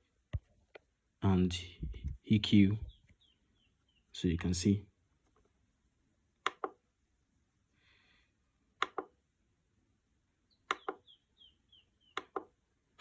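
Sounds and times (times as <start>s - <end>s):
pedal button clicks: 10.7s - 11.0s.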